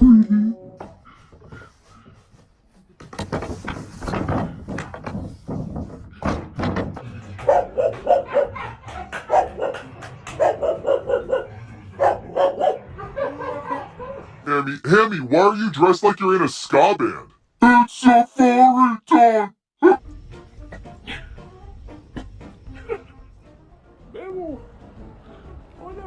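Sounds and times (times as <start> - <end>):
thuds and clatter: 3.0 - 8.2
dog barking: 7.4 - 14.3.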